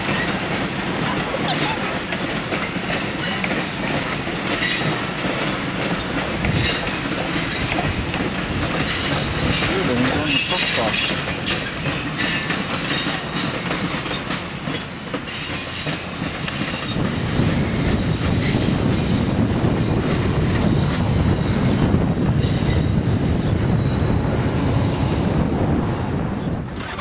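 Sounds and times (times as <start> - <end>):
train wheels clattering over track: 0.0 - 27.0
high wheel squeal: 15.3 - 17.8.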